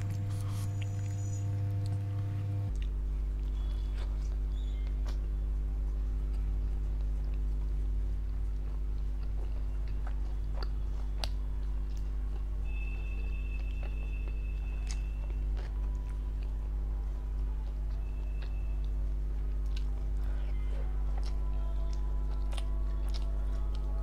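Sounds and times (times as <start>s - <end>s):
close-up chewing: 0.0s - 24.0s.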